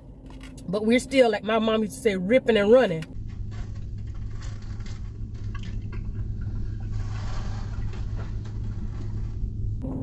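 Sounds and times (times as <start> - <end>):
car cabin hum: 0.0 - 10.0
person chewing wetly: 4.0 - 7.0.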